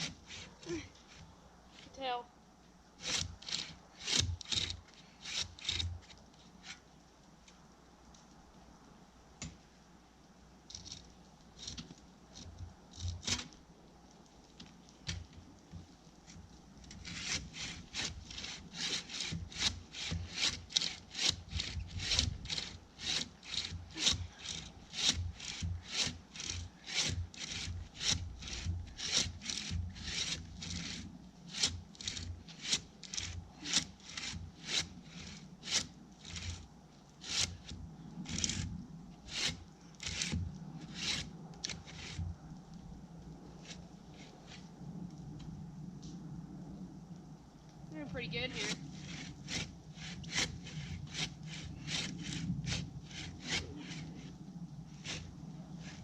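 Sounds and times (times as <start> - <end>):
hand saw rasping through wood: 3.0 - 6.8, 16.9 - 38.7, 39.3 - 42.3, 48.5 - 56.0.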